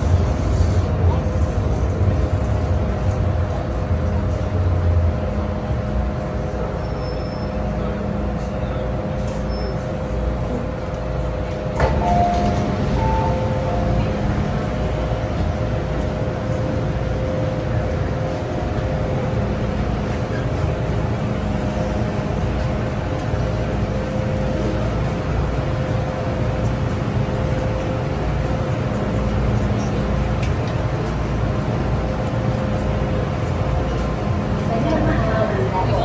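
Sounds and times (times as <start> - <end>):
train rumble and hum: 0.0 - 36.0.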